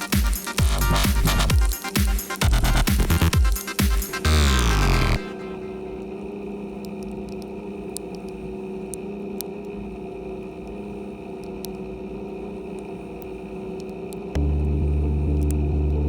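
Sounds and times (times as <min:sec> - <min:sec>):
sharp ticks: 0:00.0 - 0:05.1.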